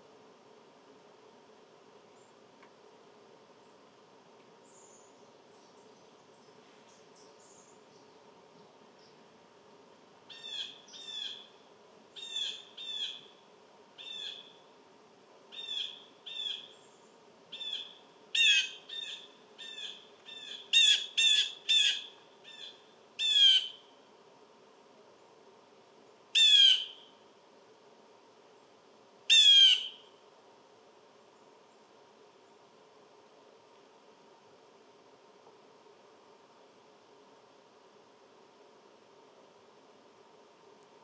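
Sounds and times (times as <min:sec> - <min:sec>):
bird calling in nasal notes: 0:26.4 - 0:27.0, 0:29.3 - 0:30.0.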